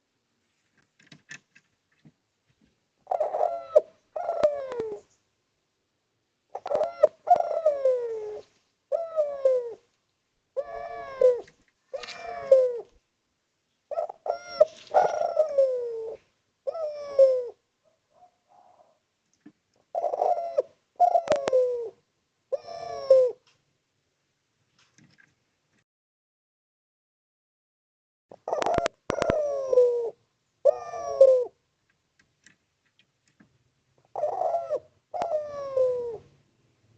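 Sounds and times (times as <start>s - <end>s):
dove cooing: 3.0s - 5.2s, 6.5s - 9.9s, 10.6s - 13.0s, 13.9s - 19.0s, 19.8s - 23.4s, 28.3s - 31.6s, 34.0s - 36.4s.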